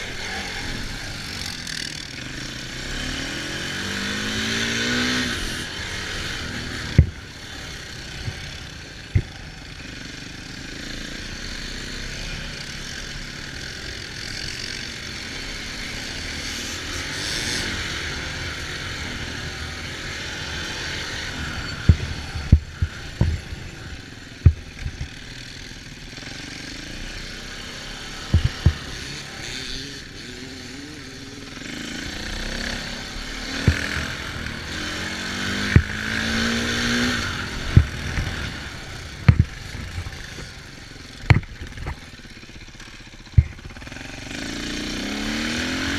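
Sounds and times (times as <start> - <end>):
off-road vehicle engine running: 0.0 - 45.9
steady rushing noise: 27.7 - 44.9
sharp knocks: 28.3 - 28.8.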